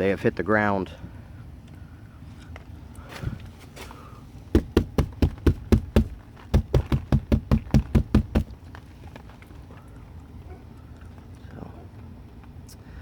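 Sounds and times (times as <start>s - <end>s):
rapid sharp knocks: 4.6s - 8.5s
soft thump: 4.6s - 8.5s.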